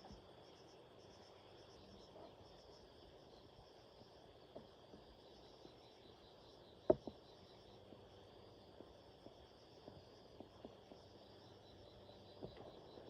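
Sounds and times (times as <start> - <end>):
insects chirring: 0.0 - 13.0
light knocks: 6.9 - 7.2.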